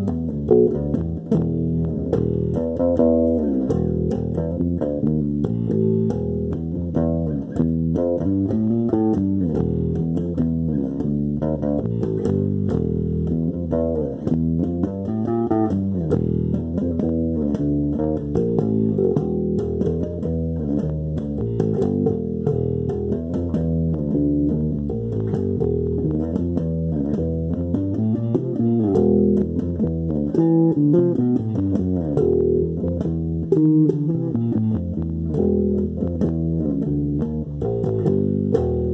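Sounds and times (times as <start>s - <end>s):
bass guitar music: 0.0s - 38.9s.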